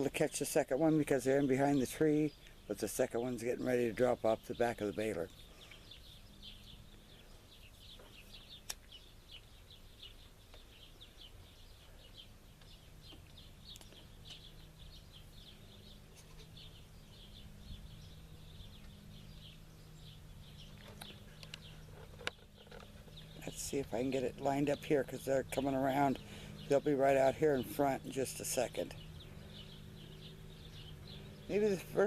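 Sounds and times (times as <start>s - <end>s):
birds chirping: 0.0s - 32.0s
faint tractor engine hum: 0.0s - 32.0s.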